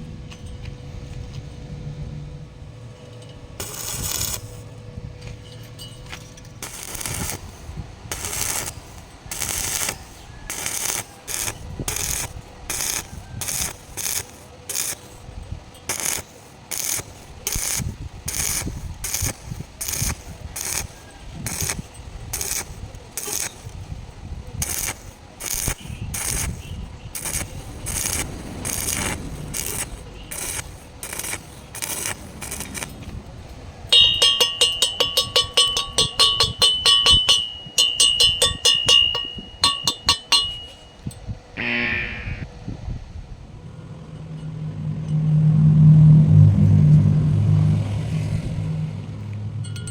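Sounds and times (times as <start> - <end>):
scraping strokes on metal: 3.0 - 33.2, 33.9 - 42.5.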